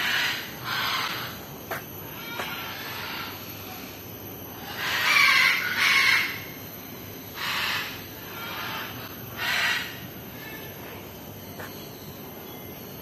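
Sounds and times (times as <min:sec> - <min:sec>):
harsh bird calls: 0:00.0 - 0:03.4.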